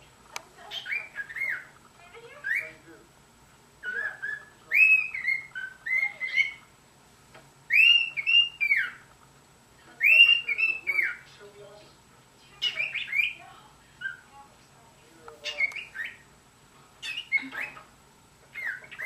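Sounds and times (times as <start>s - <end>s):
cockatiel whistling: 0.7s - 1.7s, 3.8s - 6.6s, 7.7s - 9.0s, 10.0s - 11.2s, 15.4s - 16.3s, 17.0s - 17.9s, 18.5s - 19.0s.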